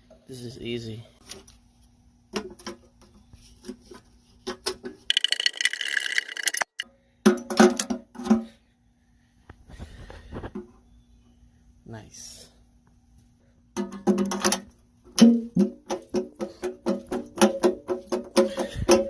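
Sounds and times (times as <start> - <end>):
metal parts knocking and clinking: 5.1 - 6.8.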